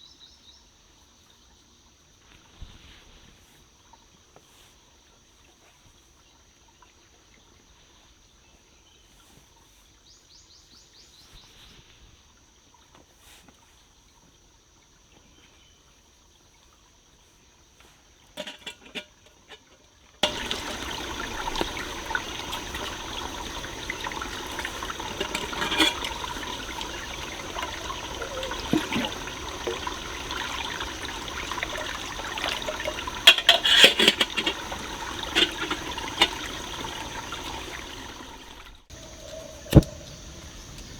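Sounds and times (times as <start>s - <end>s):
stream running water: 11.8s - 40.9s.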